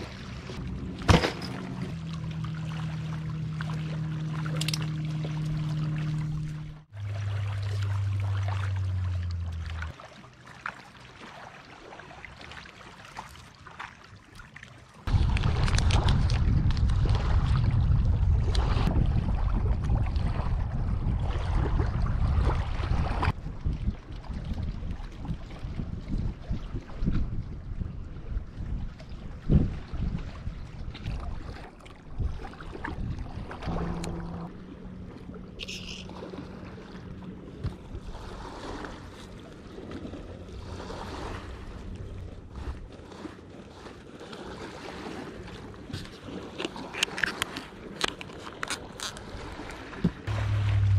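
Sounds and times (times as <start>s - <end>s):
small waves lapping on rocks: 0.0s - 17.8s, 28.1s - 50.9s
low hum: 0.1s - 10.4s, 32.8s - 42.9s, 50.2s - 50.9s
wind buffeting microphone: 15.1s - 35.1s
steady low hum: 33.2s - 38.6s, 50.3s - 50.9s.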